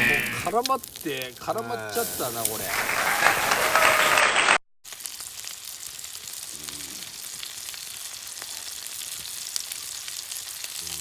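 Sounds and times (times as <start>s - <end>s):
food sizzling over campfire: 0.0s - 11.0s.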